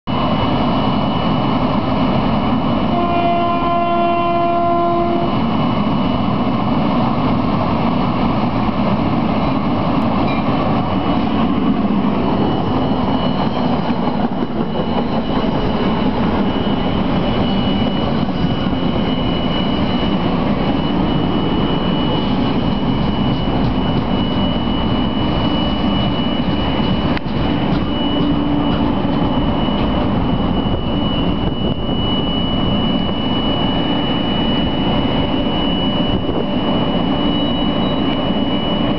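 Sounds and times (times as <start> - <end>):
thin high whine: 0.1 - 38.9
train wheels rumbling on rail: 0.1 - 38.9
train horn: 2.8 - 5.5.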